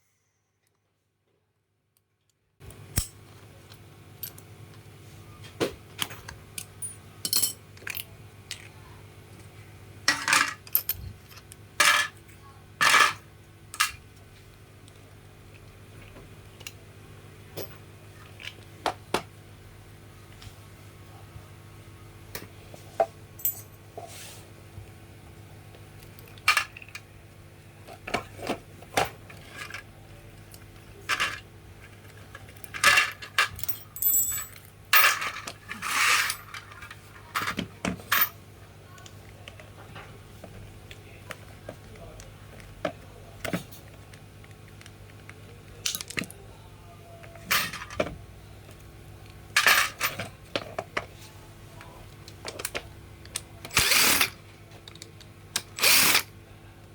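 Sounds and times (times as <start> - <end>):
low steady hum: 2.6 - 56.9
metal parts clinking and clattering: 6.0 - 8.7, 10.1 - 12.2, 23.4 - 23.8, 30.4 - 31.4, 32.0 - 38.3, 47.4 - 48.1, 49.6 - 50.3.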